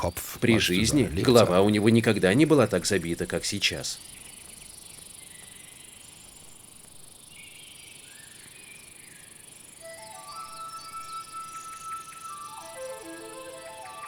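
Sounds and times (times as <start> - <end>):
faint bird-like chirps: 0.0 - 14.0
insects chirring: 0.0 - 14.0
soft music with held notes: 9.8 - 14.0.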